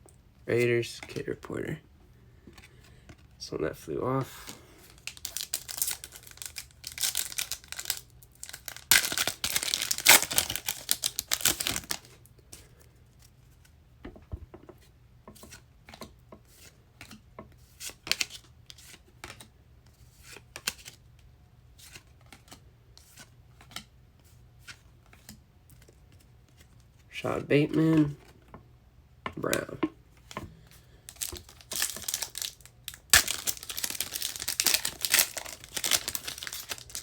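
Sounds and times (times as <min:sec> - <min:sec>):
plastic wrapper crinkling and tearing: 0:04.9 - 0:12.2, 0:31.1 - 0:37.0.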